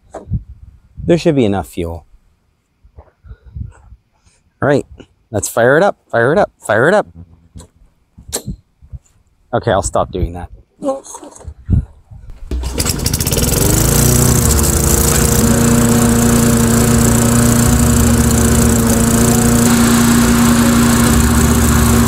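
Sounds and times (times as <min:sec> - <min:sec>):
lawnmower engine starting and running: 0:12.3 - 0:22.0.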